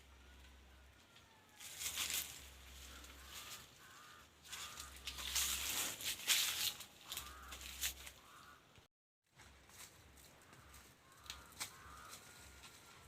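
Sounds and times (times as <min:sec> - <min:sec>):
rustling of dry leaves: 0:00.0 - 0:08.7, 0:09.3 - 0:13.0.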